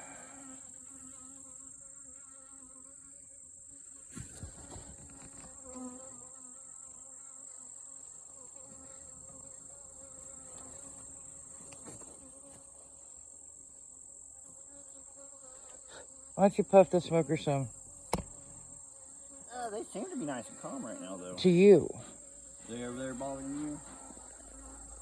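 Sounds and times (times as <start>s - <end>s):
honeybees buzzing: 0.0s - 25.0s
light knocks: 18.1s - 18.4s.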